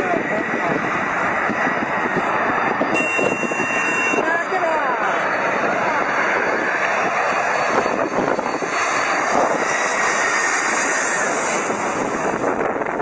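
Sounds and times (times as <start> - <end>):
jet engines passing: 0.0 - 13.0
faint high whine: 2.8 - 5.4.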